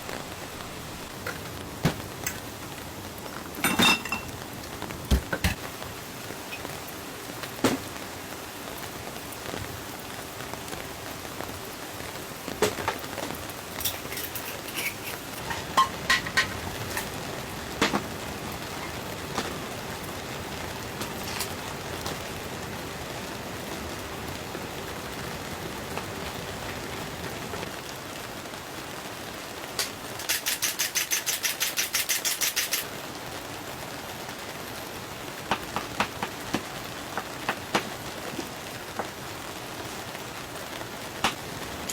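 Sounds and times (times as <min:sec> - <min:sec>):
rain falling on a tent: 0:00.0 - 0:41.9
fast rattle of clicks: 0:30.2 - 0:32.9.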